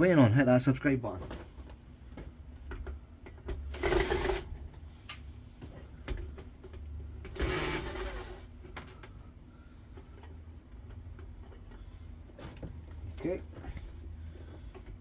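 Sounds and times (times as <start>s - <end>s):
cordless drill whirring: 3.7s - 4.5s, 7.3s - 8.5s.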